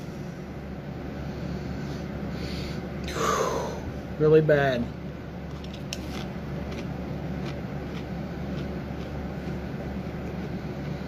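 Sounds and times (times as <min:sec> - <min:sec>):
low background hum: 0:00.0 - 0:11.0
crisp being chewed: 0:05.4 - 0:11.0.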